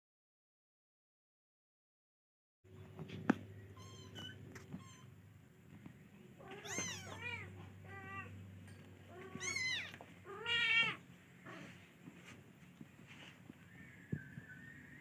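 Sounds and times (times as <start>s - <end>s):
cat meowing: 3.8s - 5.1s, 6.4s - 8.3s, 9.1s - 11.7s.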